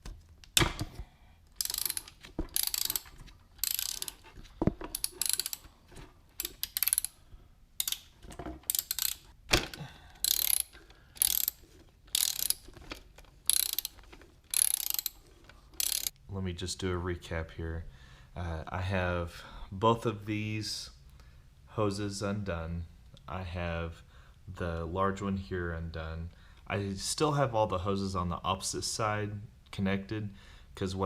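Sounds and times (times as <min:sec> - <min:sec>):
hand ratchet clicking: 0:01.5 - 0:04.3, 0:04.9 - 0:05.7, 0:06.4 - 0:07.2, 0:07.8 - 0:09.4, 0:10.2 - 0:15.2, 0:15.8 - 0:16.2.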